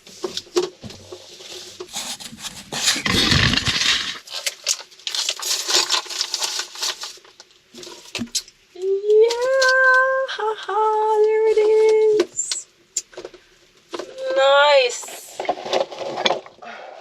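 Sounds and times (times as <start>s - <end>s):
rustling: 0.0s - 8.2s
objects knocked and scraped: 0.1s - 4.2s.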